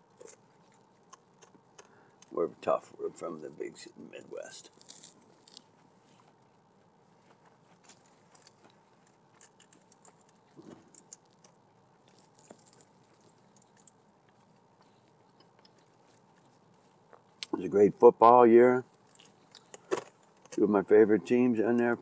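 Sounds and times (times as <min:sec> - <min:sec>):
man chewing food: 0:00.0 - 0:02.4, 0:04.6 - 0:17.5, 0:18.9 - 0:20.6.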